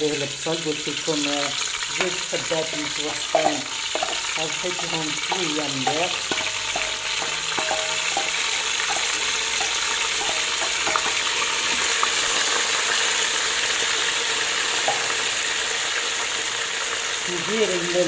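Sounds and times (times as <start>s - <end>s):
chicken and onion sizzling: 0.0s - 18.0s
wooden spoon stirring: 2.0s - 12.6s.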